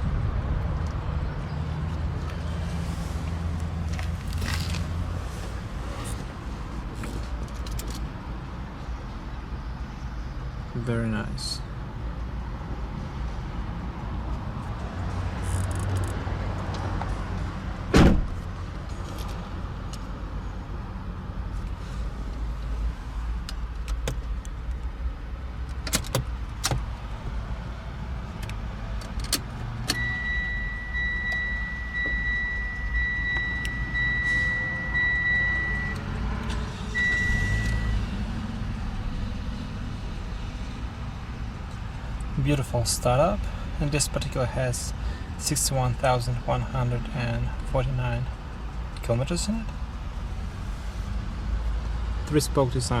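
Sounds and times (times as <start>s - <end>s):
loud thump: 17.9s - 18.4s
electronic warning chime beeping: 30.0s - 36.0s, 37.0s - 38.0s.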